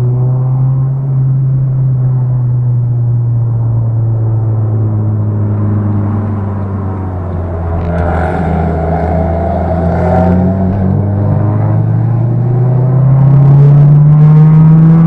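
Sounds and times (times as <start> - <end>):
car engine drone: 0.0 - 15.0
brighter engine note rising: 3.2 - 15.0.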